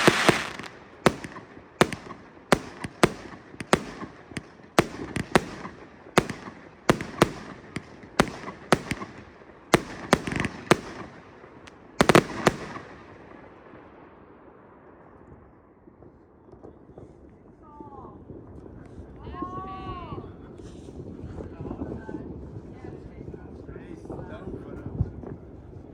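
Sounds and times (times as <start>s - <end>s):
fireworks hiss: 0.0s - 4.4s
fireworks bangs with echo: 0.0s - 14.5s.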